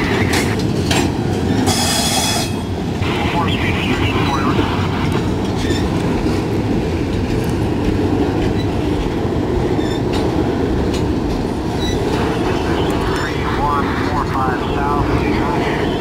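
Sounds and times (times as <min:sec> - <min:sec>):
steel wheels rumbling on rail: 0:00.0 - 0:16.0
clicks and clacks: 0:00.1 - 0:01.5, 0:09.9 - 0:13.3.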